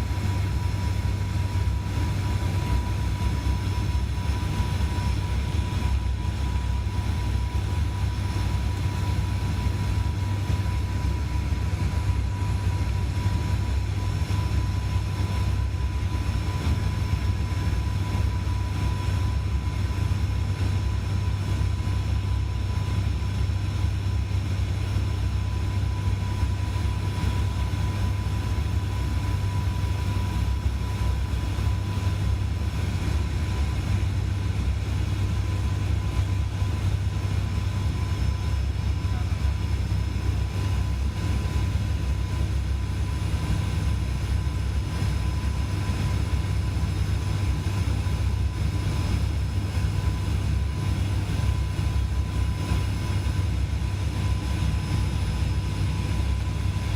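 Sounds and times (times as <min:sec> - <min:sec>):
turboprop engines droning: 0:00.0 - 0:56.9.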